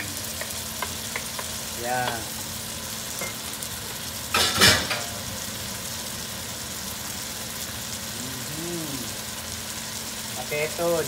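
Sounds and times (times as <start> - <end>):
shrimp sizzling in a pan: 0.0 - 11.0
loud clatter in pan: 4.3 - 5.2.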